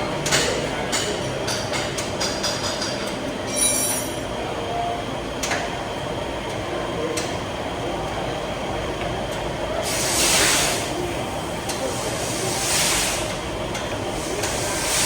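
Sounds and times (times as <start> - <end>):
steady background noise: 0.0 - 15.0
metal clink ringing: 3.5 - 4.3
air hissing burst: 9.8 - 11.0, 11.9 - 13.3.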